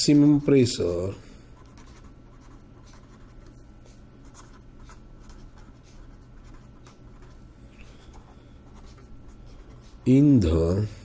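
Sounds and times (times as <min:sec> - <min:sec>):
steady low hum: 0:00.0 - 0:11.0
pen scratching handwriting: 0:01.6 - 0:03.5, 0:04.2 - 0:07.4.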